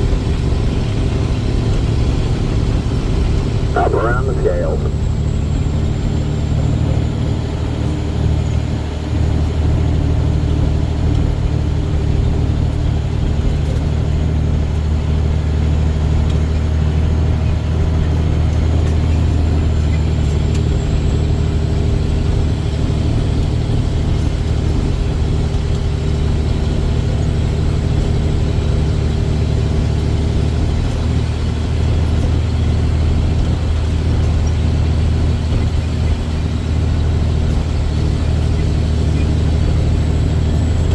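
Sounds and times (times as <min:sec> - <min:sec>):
diesel truck engine droning: 0:00.0 - 0:13.4.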